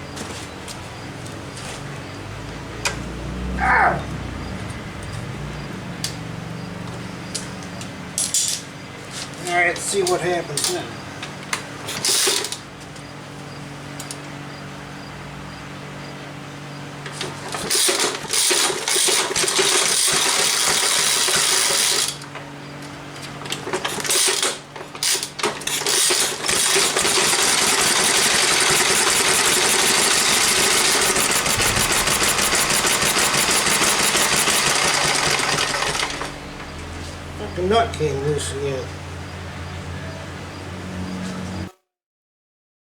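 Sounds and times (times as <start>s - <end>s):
engine cranking: 2.4s - 8.6s, 17.1s - 22.3s, 23.4s - 39.1s.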